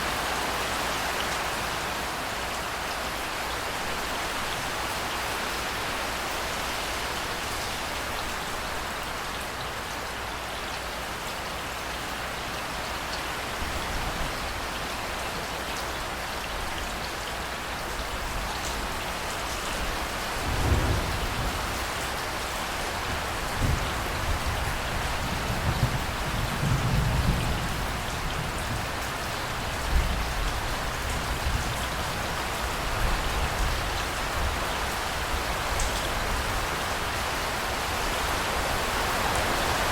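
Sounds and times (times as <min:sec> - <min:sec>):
steady rain falling: 0:00.0 - 0:39.9
thunder rumbling: 0:20.4 - 0:21.8.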